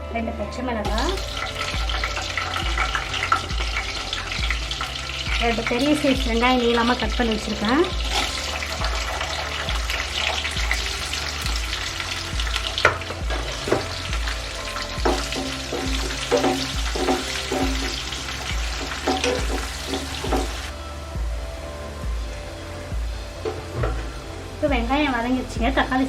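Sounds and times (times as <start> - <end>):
onions sizzling in oil: 0.8 - 20.8
spatula scraping pan: 15.0 - 18.2.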